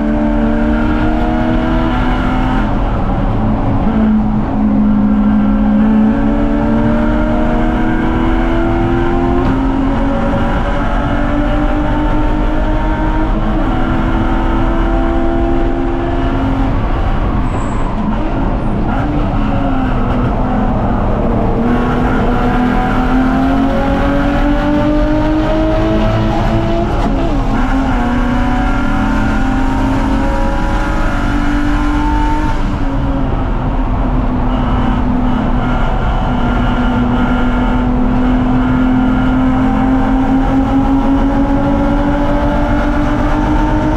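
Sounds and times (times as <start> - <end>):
car engine running hard: 0.0 - 43.9.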